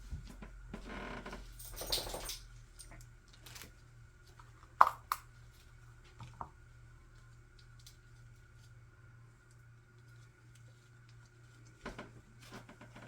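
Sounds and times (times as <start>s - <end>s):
faint steady hum: 0.0s - 13.0s
rustle of objects: 5.3s - 13.0s.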